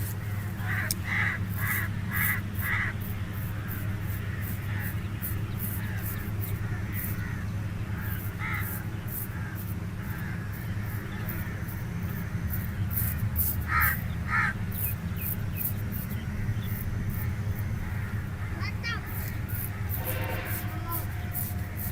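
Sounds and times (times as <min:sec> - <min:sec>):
steady low hum: 0:00.0 - 0:21.9
razor scraping skin: 0:08.1 - 0:13.6, 0:19.1 - 0:21.9
short calls: 0:18.4 - 0:21.9.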